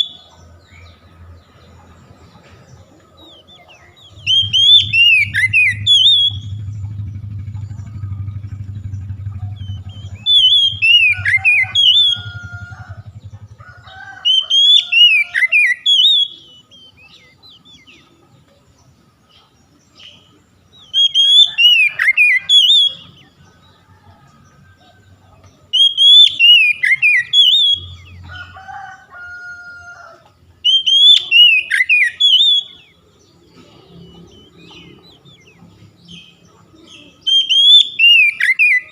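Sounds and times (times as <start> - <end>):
magpie-robin whistled song: 0.0 - 1.0, 3.3 - 7.3, 8.4 - 12.6, 14.2 - 18.1, 19.8 - 23.4, 25.7 - 28.2, 30.6 - 33.2, 34.1 - 38.9
low hum: 4.0 - 13.8.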